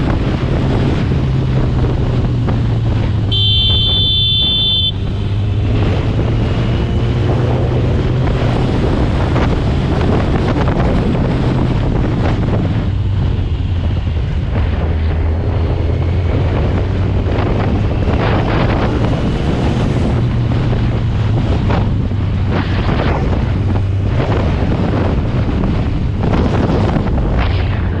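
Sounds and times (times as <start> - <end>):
motorcycle engine running: 0.0 - 6.6
wind buffeting microphone: 0.0 - 28.0.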